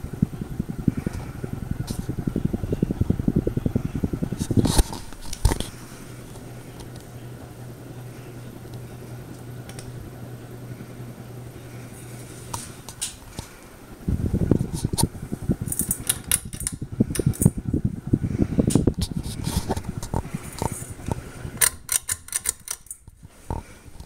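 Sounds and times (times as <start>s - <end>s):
irregular rumbling and clicking: 0.0s - 7.6s, 12.5s - 24.0s
ceiling fan motor hum: 0.0s - 24.0s.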